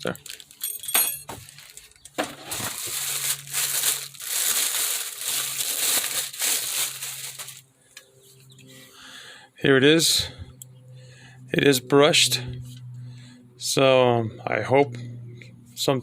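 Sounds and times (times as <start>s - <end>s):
packaging crinkling and rustling: 0.0s - 7.7s.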